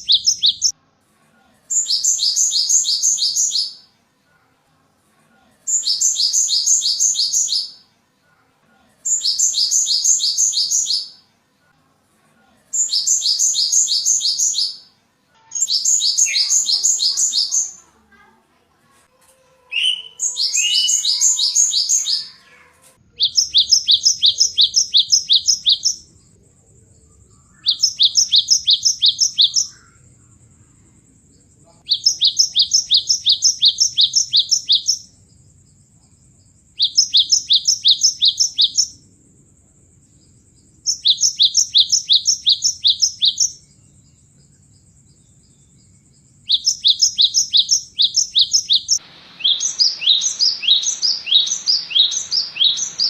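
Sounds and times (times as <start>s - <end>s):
tit birdsong: 0.0s - 0.8s, 1.7s - 3.9s, 5.7s - 7.9s, 9.0s - 11.2s, 12.7s - 17.9s, 19.7s - 22.4s, 23.0s - 39.1s, 40.1s - 53.0s
faint high tone: 19.1s - 23.2s.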